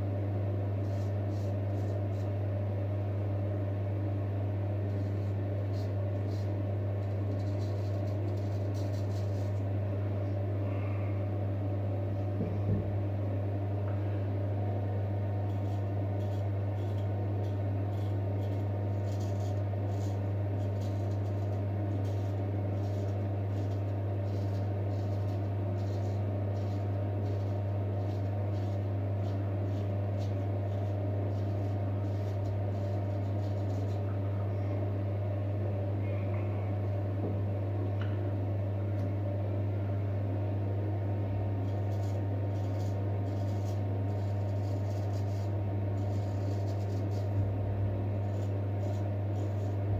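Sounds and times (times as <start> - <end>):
low mechanical hum: 0.0 - 49.9
razor scraping stubble: 4.9 - 9.7, 15.5 - 34.1, 41.6 - 49.9.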